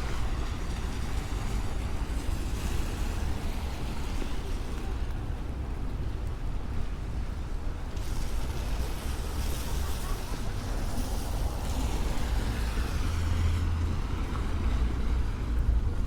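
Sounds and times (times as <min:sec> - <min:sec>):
tyres hissing on wet road: 0:07.2 - 0:16.0.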